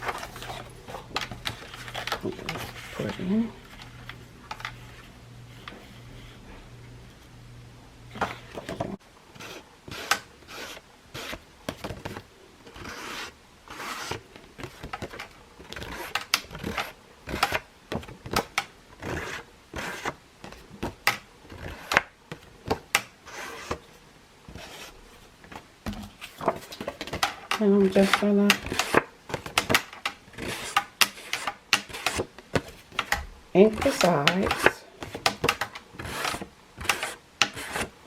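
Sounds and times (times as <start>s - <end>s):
paper rubbing and scraping: 8.2s - 17.6s, 23.2s - 23.8s, 24.5s - 25.3s, 27.8s - 33.0s, 33.6s - 34.8s, 36.0s - 37.9s.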